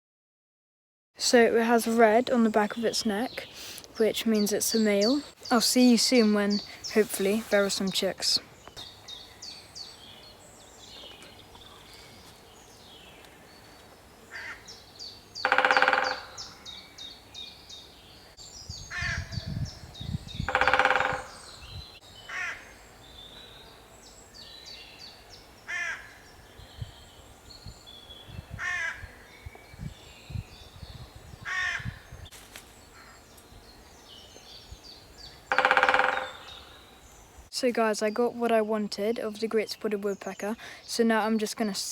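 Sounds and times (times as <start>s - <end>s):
small birds singing: 1.2s - 41.9s
loud harsh bird calls: 13.6s - 26.6s, 28.5s - 29.4s, 31.4s - 32.2s, 34.0s - 37.1s.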